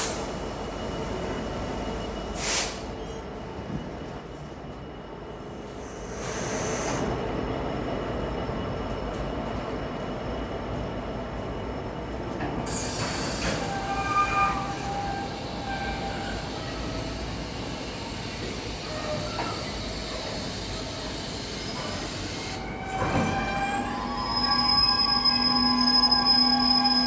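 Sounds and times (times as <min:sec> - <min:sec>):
freight train wagons rumbling: 0:07.2 - 0:27.0
wheel squeals: 0:12.7 - 0:17.4, 0:21.4 - 0:27.0.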